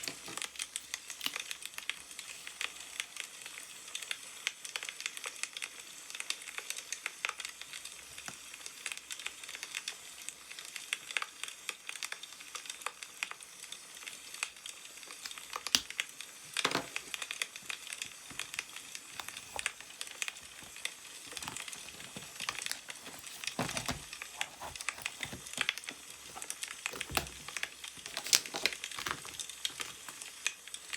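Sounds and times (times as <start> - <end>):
newspaper rustling: 0.0 - 1.6, 15.3 - 30.9
wood fire crackling: 15.0 - 30.9.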